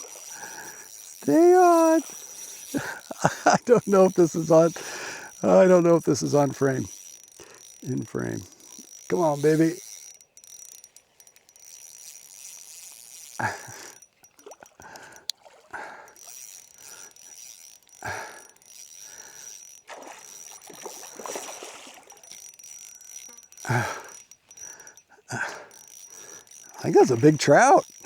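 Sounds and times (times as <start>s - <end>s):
high-pitched insect trill: 0.0s - 15.3s, 16.0s - 28.0s
water splashes: 14.4s - 16.1s, 19.9s - 22.3s.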